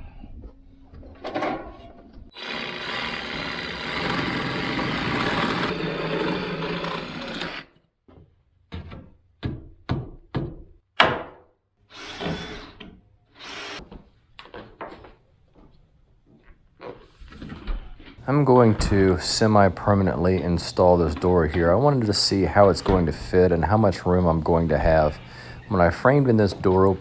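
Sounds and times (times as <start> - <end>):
power tool running: 2.4 - 7.7, 11.9 - 12.8, 13.4 - 13.8, 21.8 - 27.0
knocks and thuds on wood: 8.1 - 11.4.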